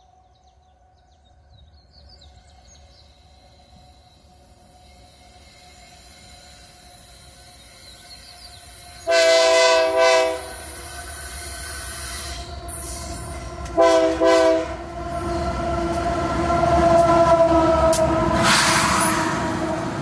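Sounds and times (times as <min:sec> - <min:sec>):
train rumble: 0:00.0 - 0:20.0
locomotive air horn blasts: 0:09.0 - 0:10.8, 0:12.0 - 0:19.6.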